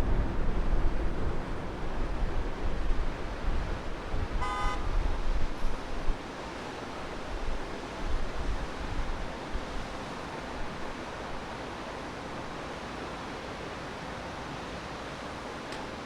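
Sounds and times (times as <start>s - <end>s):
steady rushing noise: 0.0s - 4.4s
wind buffeting on microphone: 0.0s - 6.2s.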